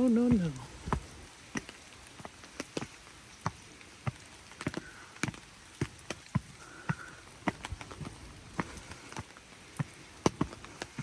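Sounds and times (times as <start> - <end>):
faint hiss of falling rain: 0.0 - 11.0
raindrops ticking: 0.0 - 11.0.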